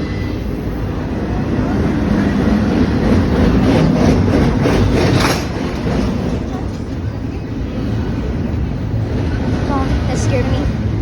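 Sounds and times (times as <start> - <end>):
freight train passing: 0.0 - 11.0
rattling clatters: 3.8 - 7.2.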